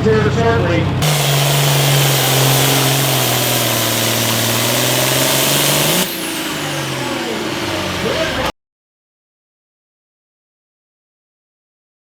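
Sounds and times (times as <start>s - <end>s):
tractor engine running hard: 0.0s - 8.5s.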